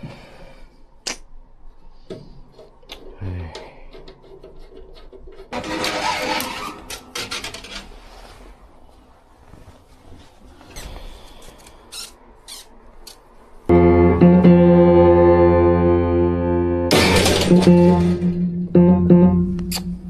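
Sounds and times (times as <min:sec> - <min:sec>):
organ-like keyboard chords: 0:13.7 - 0:20.0.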